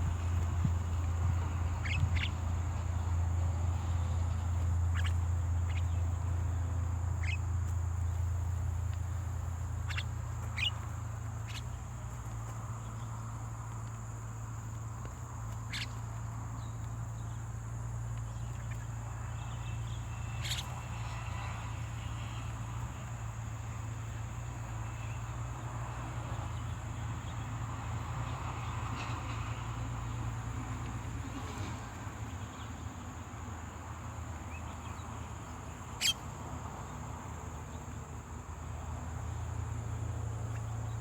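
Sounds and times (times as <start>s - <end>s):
short bird chirps: 9.9s - 10.8s.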